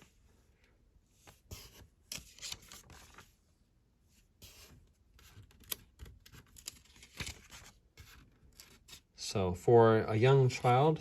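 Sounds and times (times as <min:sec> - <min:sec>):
paper pages rustling: 0:01.2 - 0:03.4, 0:04.4 - 0:09.1.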